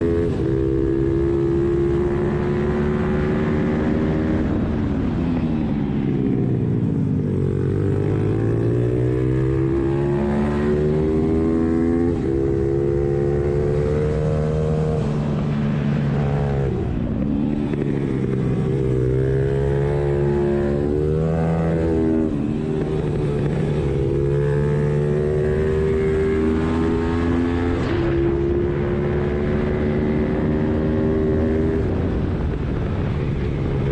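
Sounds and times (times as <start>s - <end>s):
motorbike engine revving: 7.3s - 32.8s.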